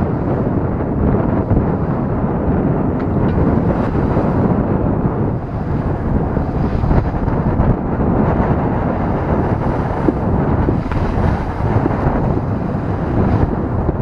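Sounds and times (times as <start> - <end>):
sea rushing along hull: 0.0 - 14.0
wind buffeting microphone: 0.0 - 14.0.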